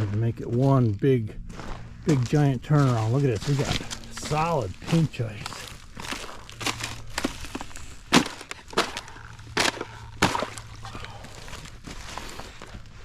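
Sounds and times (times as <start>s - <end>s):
low steady hum: 0.0s - 13.0s
ice cracking: 2.9s - 12.9s.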